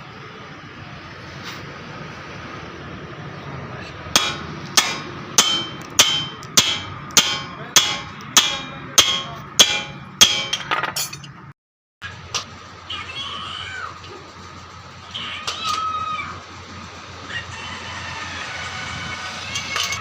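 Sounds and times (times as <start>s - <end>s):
hammer striking metal: 4.1s - 11.4s.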